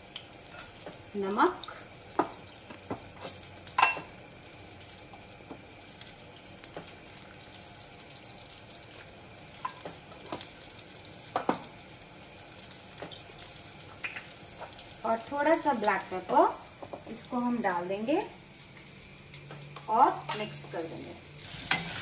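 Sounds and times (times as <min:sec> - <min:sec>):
potatoes sizzling in oil: 0:00.0 - 0:22.0
cookware clinking: 0:03.8 - 0:04.1, 0:20.2 - 0:20.8.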